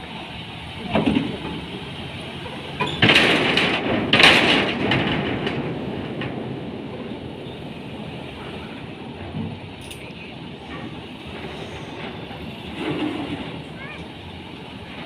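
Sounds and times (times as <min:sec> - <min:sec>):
steady mechanical rumble: 0:00.0 - 0:15.0
loud metallic clanking: 0:00.8 - 0:07.6.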